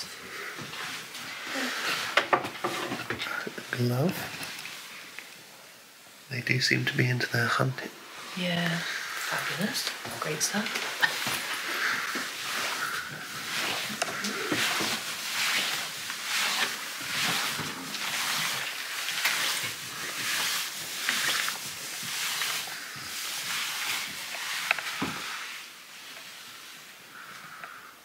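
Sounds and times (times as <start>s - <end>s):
clothing rustling: 8.0s - 27.3s.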